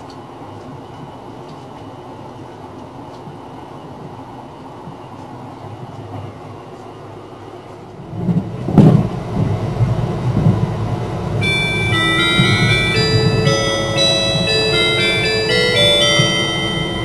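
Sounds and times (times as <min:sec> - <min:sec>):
train wheels rumbling on rail: 0:00.0 - 0:17.0
onboard melody chime: 0:11.4 - 0:17.0.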